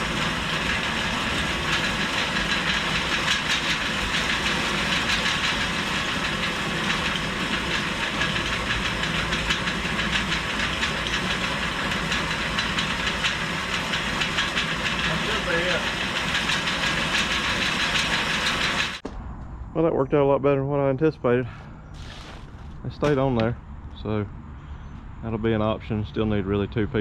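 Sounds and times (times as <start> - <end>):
mechanical machine noise: 0.0 - 19.7.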